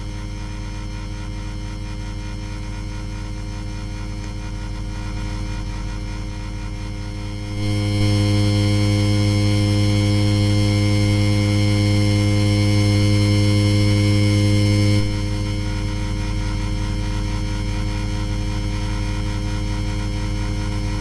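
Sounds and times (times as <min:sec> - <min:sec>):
ceiling fan motor humming: 0:04.6 - 0:19.2.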